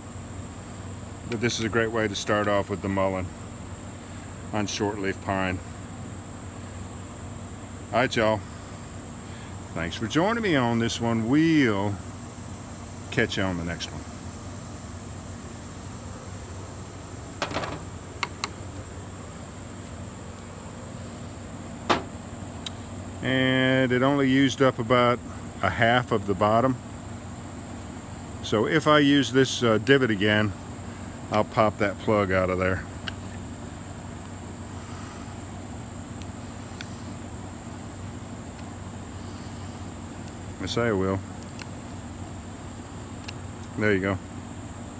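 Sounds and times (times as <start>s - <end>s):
crickets droning: 0.0s - 44.9s
insect chirring: 0.0s - 44.9s
low steady rumble: 0.0s - 44.9s
light knocks and taps: 21.9s - 22.2s.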